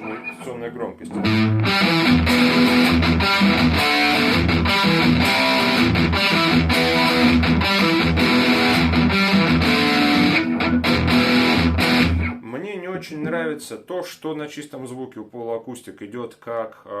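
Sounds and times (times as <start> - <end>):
guitar feedback whistle: 0.0 - 0.5
distorted electric guitar riff: 0.0 - 12.4.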